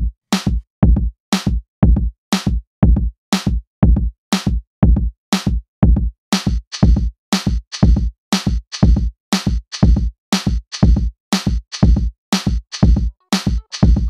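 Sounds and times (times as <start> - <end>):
drum machine beat: 0.0 - 14.0.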